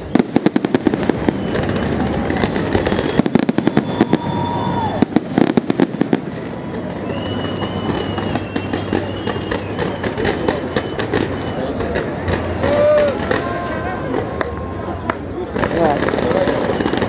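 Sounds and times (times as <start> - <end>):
fireworks crackling bangs: 0.0 - 17.0
high wavering whistle: 2.8 - 5.2, 6.9 - 10.0.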